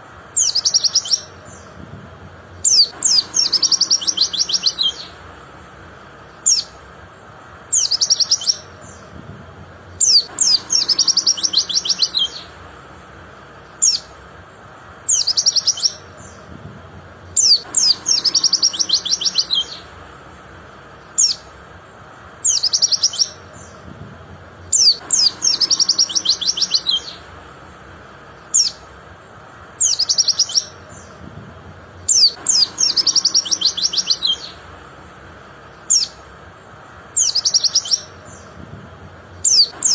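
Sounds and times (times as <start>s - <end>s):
bird chattering trills: 0.0s - 1.8s, 2.4s - 9.2s, 9.8s - 16.5s, 17.2s - 23.9s, 24.5s - 31.3s, 31.9s - 38.6s, 39.2s - 39.9s
sharp bird chirps: 0.4s - 1.8s, 2.6s - 5.2s, 6.3s - 6.8s, 7.7s - 9.1s, 10.0s - 12.6s, 13.7s - 14.2s, 15.1s - 16.4s, 17.4s - 20.0s, 21.0s - 21.5s, 22.4s - 23.8s, 24.7s - 27.3s, 28.4s - 28.9s, 29.8s - 31.2s, 32.1s - 34.7s, 35.7s - 36.2s, 37.2s - 38.6s, 39.4s - 39.9s.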